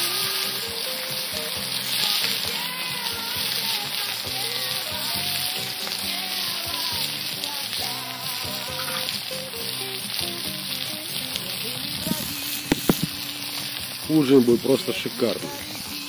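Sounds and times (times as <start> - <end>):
background music: 0.0 - 16.0
food sizzling in a pan: 0.0 - 16.0.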